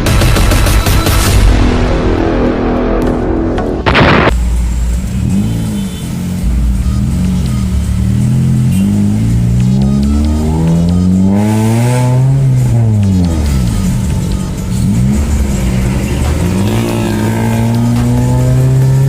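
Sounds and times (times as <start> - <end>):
car engine revving through exhaust: 4.4 - 14.0, 14.6 - 19.0.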